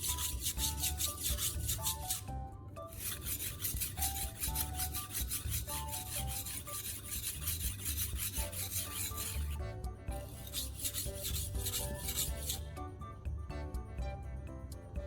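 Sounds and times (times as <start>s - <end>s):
knife scraping on whetstone: 0.0s - 2.3s, 2.9s - 9.6s, 10.2s - 12.7s.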